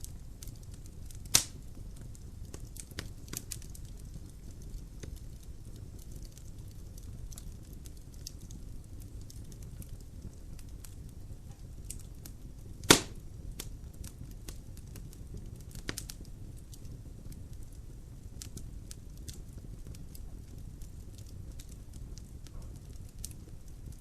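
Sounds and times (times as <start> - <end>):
logs burning and crackling: 0.0 - 24.0
loud sharp pop of fire: 1.2 - 1.7, 12.8 - 13.7, 22.4 - 23.4.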